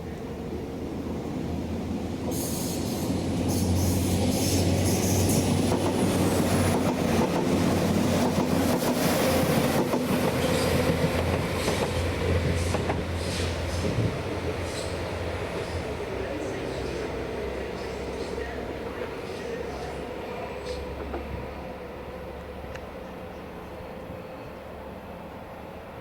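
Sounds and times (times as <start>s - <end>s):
train low drone: 0.0s - 26.0s
train wheel squeals: 2.3s - 5.6s.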